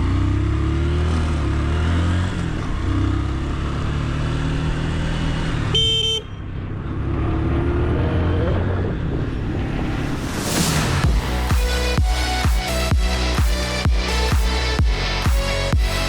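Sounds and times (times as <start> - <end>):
vehicle engine running: 0.0 - 7.2, 8.5 - 16.0
short horn honk: 5.7 - 6.4.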